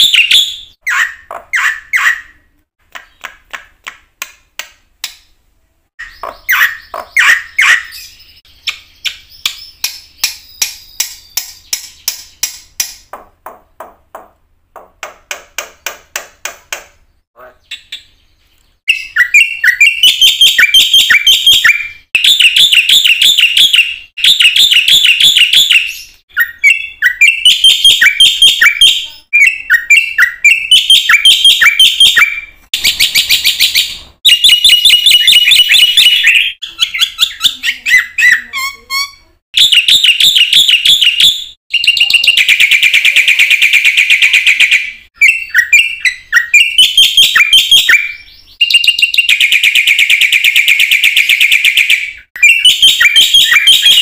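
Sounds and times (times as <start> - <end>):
starling singing whistled notes: 0.0 - 2.4, 6.0 - 12.2, 17.6 - 54.0.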